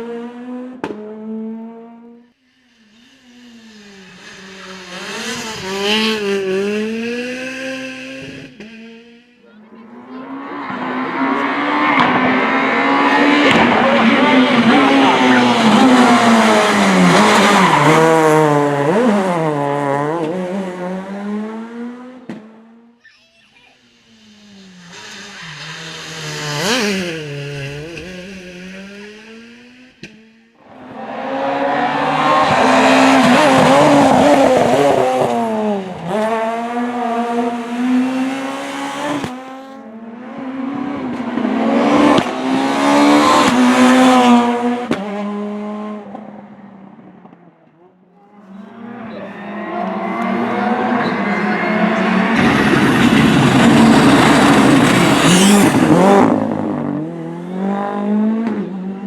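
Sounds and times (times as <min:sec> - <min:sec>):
rally cars passing at speed: 0:00.0 - 0:23.0, 0:23.8 - 0:59.0.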